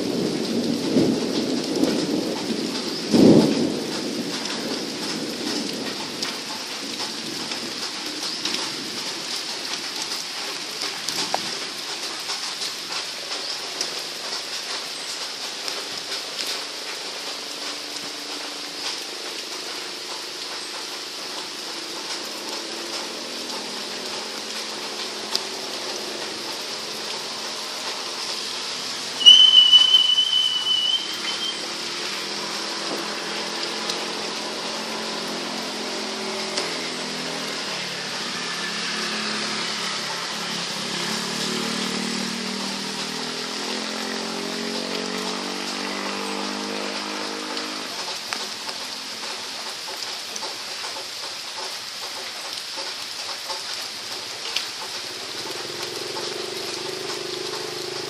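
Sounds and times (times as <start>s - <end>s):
steady rain falling: 0.0s - 58.0s
engine droning: 15.5s - 50.6s, 54.0s - 58.0s
loud high whistle: 29.2s - 31.7s.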